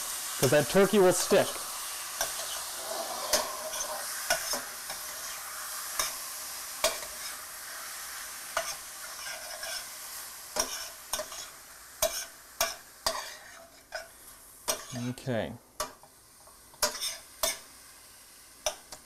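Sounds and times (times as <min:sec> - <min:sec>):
meat sizzling in a pan: 0:00.0 - 0:19.0.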